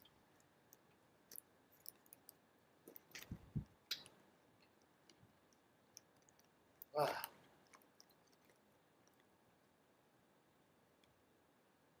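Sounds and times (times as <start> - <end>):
low thumps: 3.2 - 3.7.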